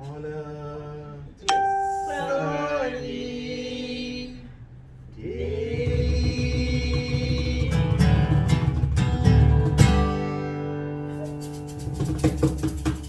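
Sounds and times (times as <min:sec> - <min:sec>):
person singing long held notes: 0:01.5 - 0:03.2.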